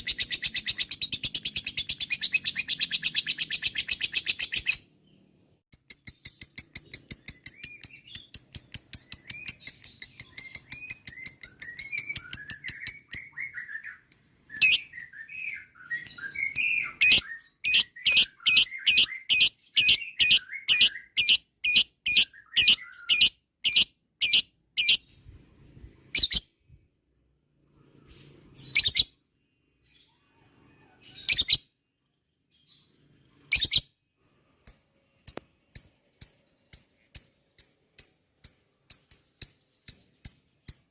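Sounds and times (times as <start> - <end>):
soft bird twittering: 0.0 - 40.9
lovebird chattering: 5.8 - 13.5, 14.6 - 25.2.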